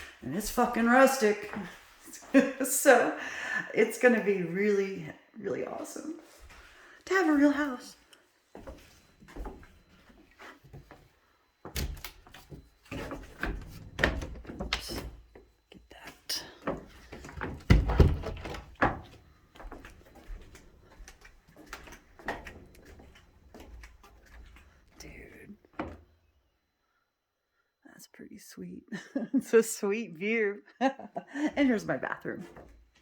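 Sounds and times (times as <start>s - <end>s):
knocks and thumps: 17.2s - 19.0s.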